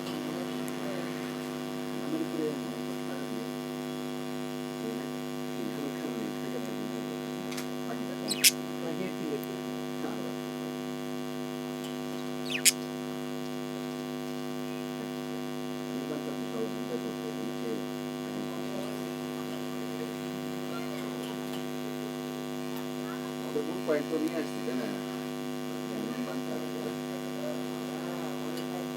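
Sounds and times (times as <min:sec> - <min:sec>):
electrical hum: 0:00.0 - 0:28.9
budgerigars chattering: 0:08.2 - 0:08.6, 0:12.4 - 0:12.9
short high bird calls: 0:08.3 - 0:08.6, 0:12.4 - 0:12.9.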